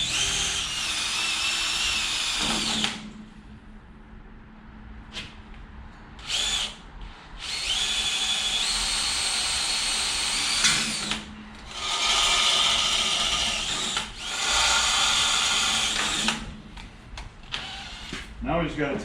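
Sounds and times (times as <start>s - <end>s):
power drill drilling metal: 0.0s - 3.0s, 7.4s - 16.5s, 17.5s - 18.2s.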